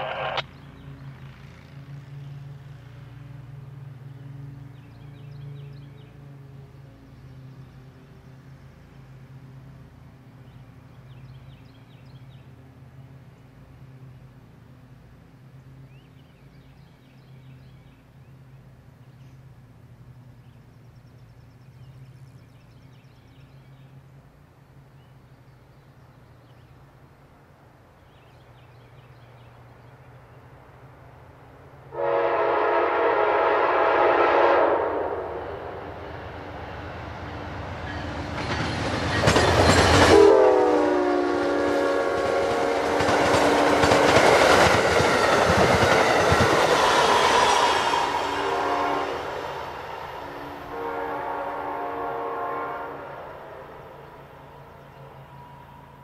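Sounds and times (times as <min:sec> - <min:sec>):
locomotive horn blasts: 0:31.9 - 0:35.7, 0:40.1 - 0:43.8, 0:47.6 - 0:49.4, 0:50.4 - 0:53.6.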